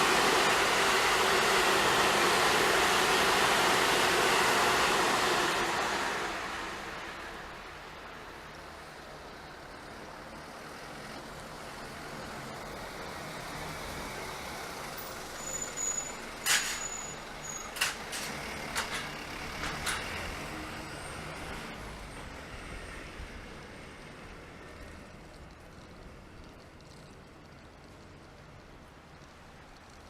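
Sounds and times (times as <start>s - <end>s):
train running past: 0.0s - 9.0s
high squeal: 15.1s - 17.8s.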